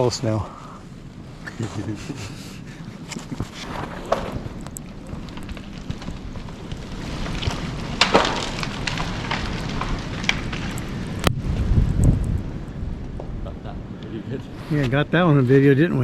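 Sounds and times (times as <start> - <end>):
branches cracking: 3.0 - 13.4
tree snapping and crashing down: 3.5 - 13.4.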